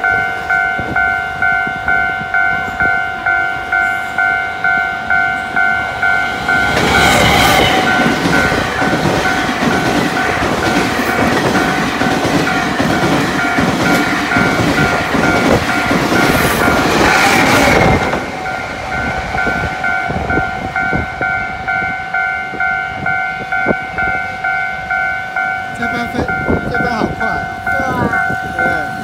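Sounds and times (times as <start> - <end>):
level crossing bell ringing: 0.0 - 29.0
train wheels clattering: 4.2 - 21.9.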